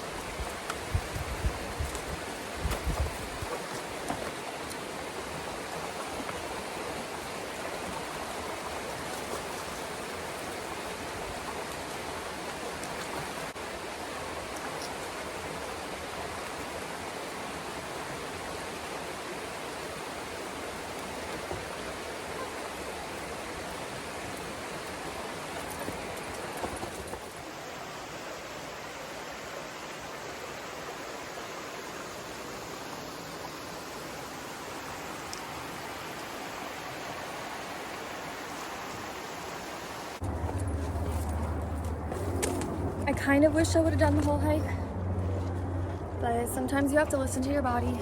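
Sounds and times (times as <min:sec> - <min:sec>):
rushing water: 0:00.0 - 0:48.0.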